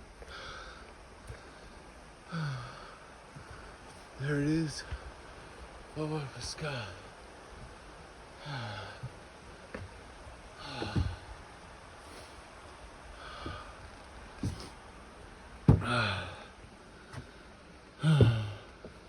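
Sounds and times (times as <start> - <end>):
man breathing heavily: 0.2 - 5.8, 6.6 - 14.9, 15.6 - 19.0
voiced sighs: 0.3 - 3.6, 8.4 - 9.1, 18.0 - 18.7.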